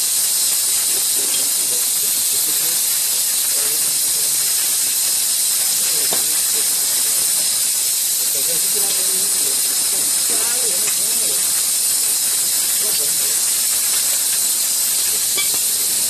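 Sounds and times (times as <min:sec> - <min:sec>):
high-pitched hiss: 0:00.0 - 0:16.0
faint voices: 0:08.2 - 0:11.8, 0:12.4 - 0:13.5.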